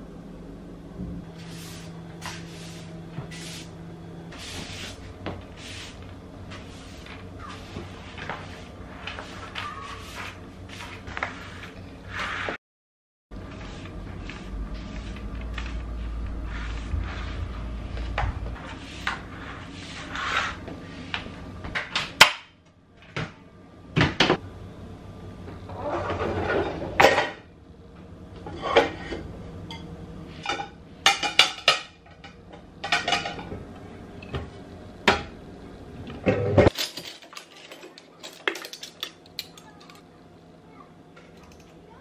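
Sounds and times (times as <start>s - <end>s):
broom sweeping wood floor: 1.3s - 12.6s, 13.4s - 21.4s.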